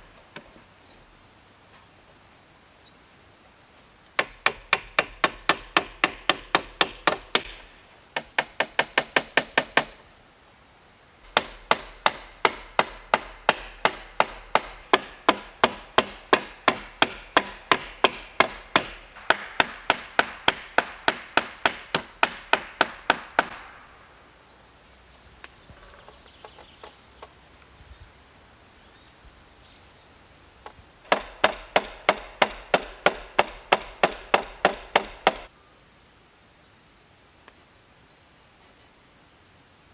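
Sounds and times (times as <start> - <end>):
tool chopping wood: 4.2 - 10.0, 11.3 - 23.8, 31.1 - 35.5.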